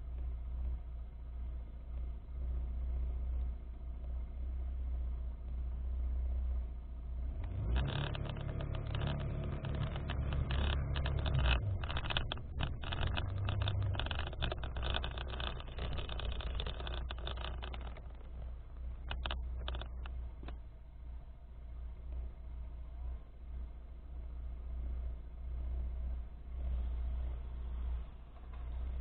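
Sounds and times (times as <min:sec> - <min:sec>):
harsh crackling rasping noise: 0:07.4 - 0:20.6.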